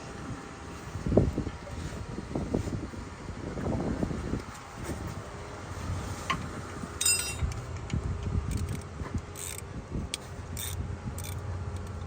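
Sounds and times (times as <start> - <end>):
metal tools and bolts clinking: 7.0 - 7.6.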